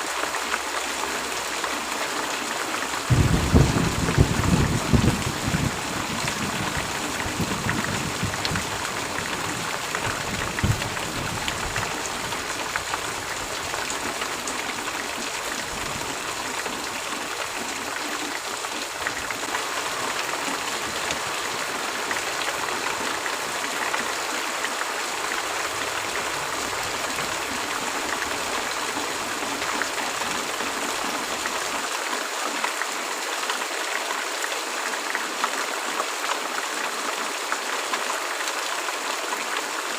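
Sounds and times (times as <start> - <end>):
heavy rain hissing: 0.0 - 32.1
low thunder rumble: 3.1 - 12.0.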